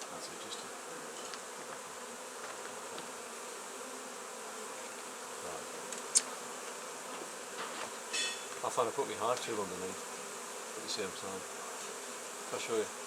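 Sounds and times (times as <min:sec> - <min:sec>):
honey bees humming: 0:00.0 - 0:13.0.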